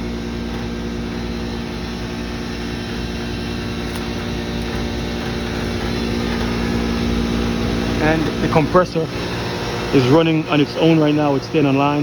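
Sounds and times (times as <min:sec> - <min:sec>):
air conditioning compressor hum: 0:00.0 - 0:12.0.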